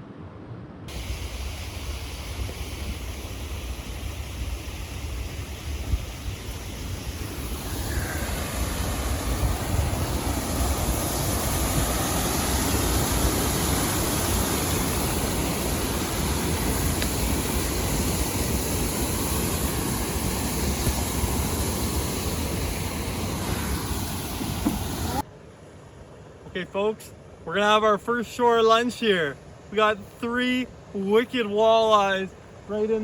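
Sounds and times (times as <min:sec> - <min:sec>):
waterfall rushing: 0:00.9 - 0:25.2
wind buffeting microphone: 0:00.9 - 0:25.2.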